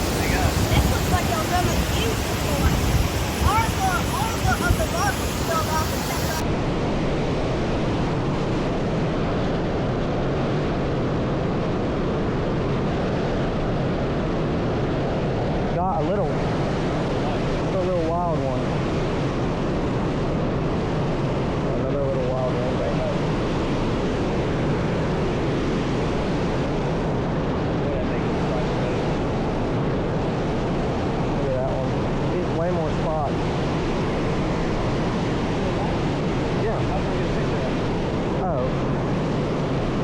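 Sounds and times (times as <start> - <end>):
stream water rushing: 0.0 - 6.4.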